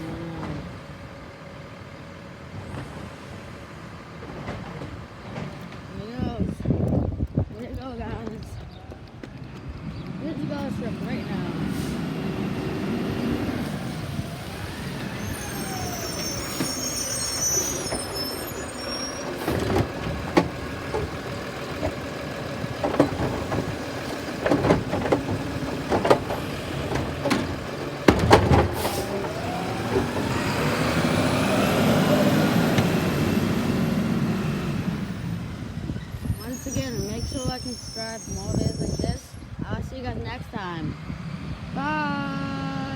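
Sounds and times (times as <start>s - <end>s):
garbage truck diesel engine: 0.0s - 6.8s, 9.7s - 39.6s
metal clanks and bangs: 19.3s - 30.3s.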